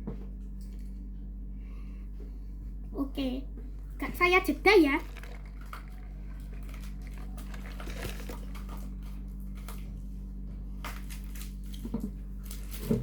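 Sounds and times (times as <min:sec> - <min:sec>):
low electrical hum: 0:00.0 - 0:13.0
packaging crinkling and clicking: 0:04.9 - 0:09.9.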